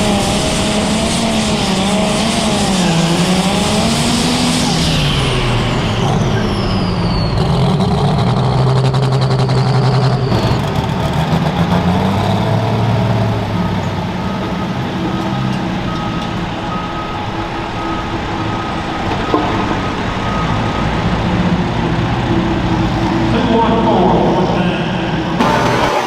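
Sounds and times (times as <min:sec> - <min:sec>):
large diesel engine running: 0:00.0 - 0:26.0
reversing alarm beeping: 0:12.5 - 0:23.4
high whine: 0:13.0 - 0:26.0.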